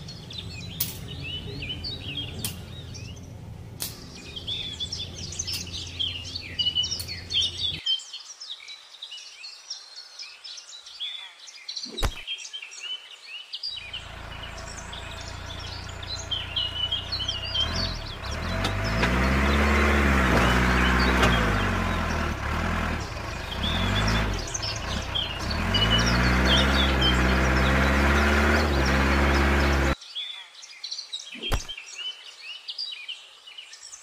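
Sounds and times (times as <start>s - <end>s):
birds chirping: 0.0s - 34.0s
motor humming: 13.8s - 30.0s.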